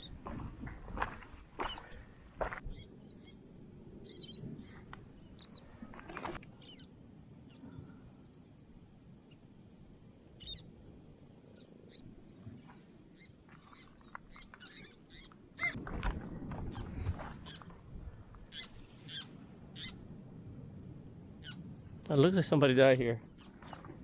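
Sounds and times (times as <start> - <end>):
birds chirping: 4.0 - 9.5, 11.5 - 15.8, 18.4 - 20.1.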